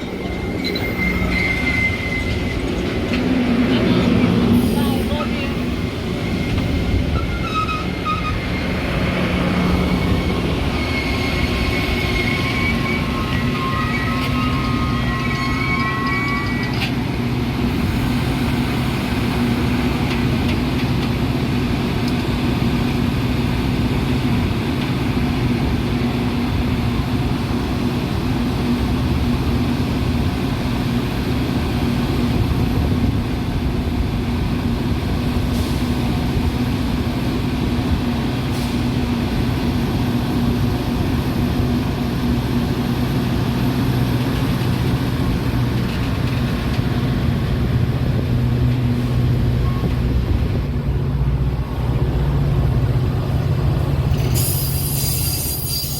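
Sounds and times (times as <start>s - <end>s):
high wheel squeal: 0.0s - 3.4s, 4.5s - 17.0s, 54.1s - 55.9s
train rumbling on rails: 0.0s - 55.9s.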